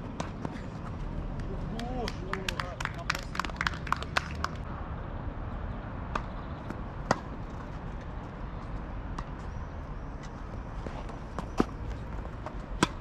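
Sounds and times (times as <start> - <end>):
tennis ball hit and bouncing: 6.1 - 7.8, 11.0 - 13.0.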